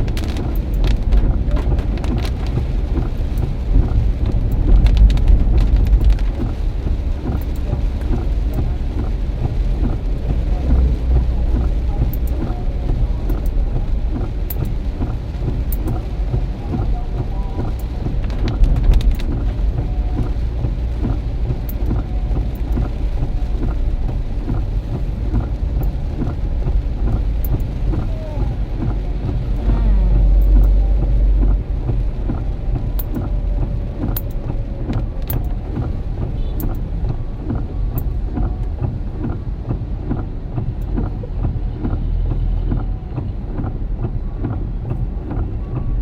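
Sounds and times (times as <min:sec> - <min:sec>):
rain hissing: 0:00.0 - 0:45.8
deep rumble of wind: 0:00.0 - 0:46.0
raindrops ticking: 0:00.0 - 0:46.0.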